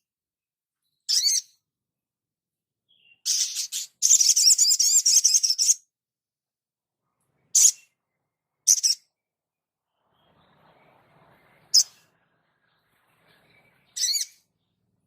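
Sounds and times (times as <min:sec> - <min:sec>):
songbird twittering song: 0:00.8 - 0:01.6, 0:02.9 - 0:05.9, 0:07.2 - 0:15.0
short high bird chirp: 0:13.3 - 0:14.5.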